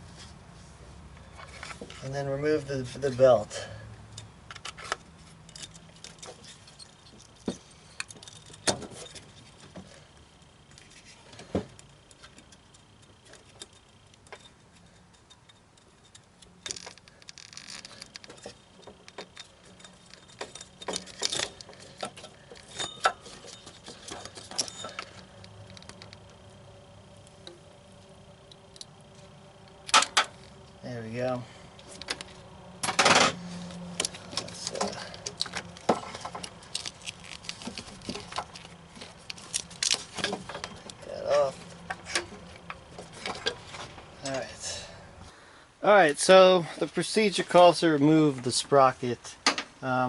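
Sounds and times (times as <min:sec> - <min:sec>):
rustling scrapes of belt: 0:00.0 - 0:02.2.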